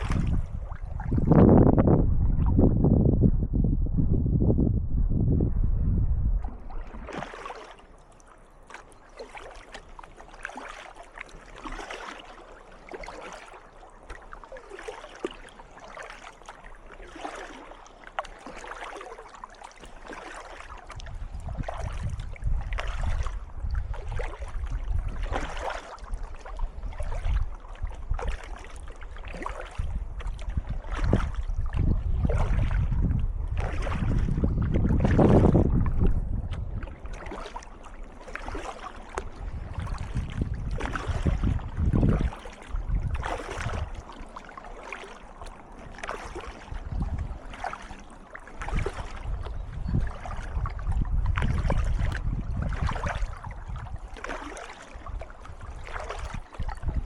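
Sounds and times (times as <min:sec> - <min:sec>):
paddle splashing in water: 0:00.0 - 0:02.7, 0:06.3 - 0:57.0
wind rumbling on microphone: 0:00.0 - 0:07.7, 0:19.8 - 0:57.0.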